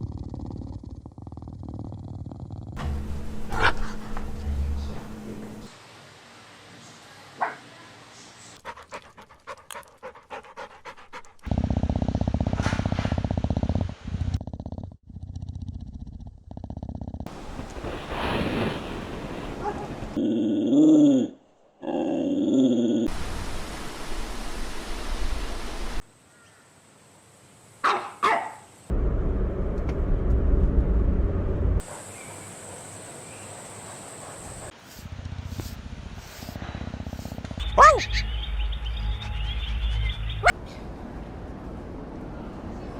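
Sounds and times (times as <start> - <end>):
puppy panting: 8.6 - 11.6, 35.5 - 38.3, 39.0 - 40.6
puppy yipping barks: 27.8 - 28.6, 37.6 - 38.3
low rumbling noise: 28.9 - 31.8.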